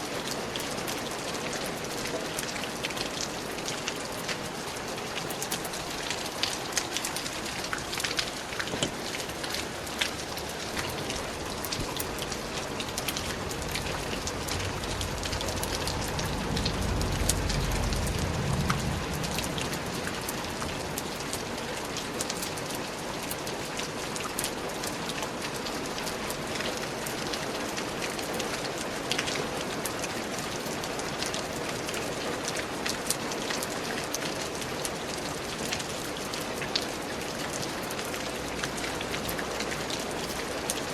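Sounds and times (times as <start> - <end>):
rain falling in a forest: 0.0 - 40.9
low rumble: 12.2 - 21.0.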